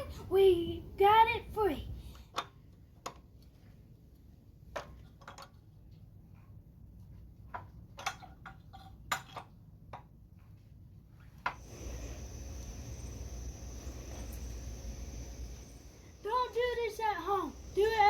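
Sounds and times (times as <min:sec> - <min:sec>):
low background rumble: 0:11.7 - 0:18.0.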